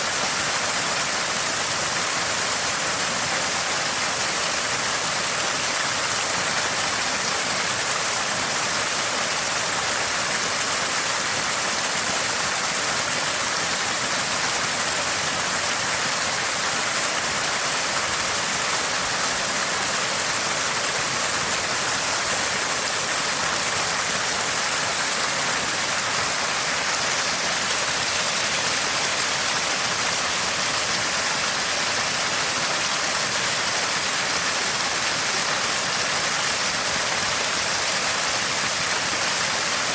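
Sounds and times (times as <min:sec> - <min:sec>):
water gushing from a spring: 0:00.0 - 0:39.9.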